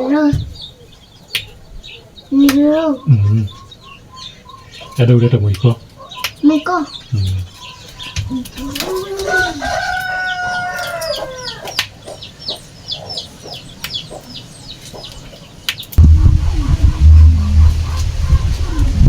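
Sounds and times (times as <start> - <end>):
rooster crowing: 8.9 - 11.8
loud low rumble: 16.0 - 19.0.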